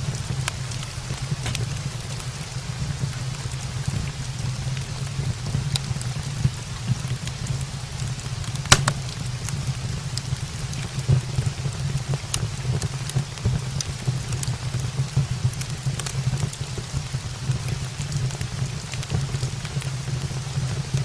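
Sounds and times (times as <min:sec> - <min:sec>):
steady rain: 0:00.0 - 0:21.0
wood fire crackling: 0:00.0 - 0:21.0.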